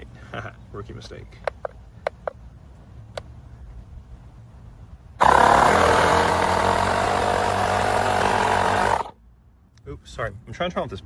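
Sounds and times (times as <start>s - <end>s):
small air compressor running: 5.2s - 9.1s.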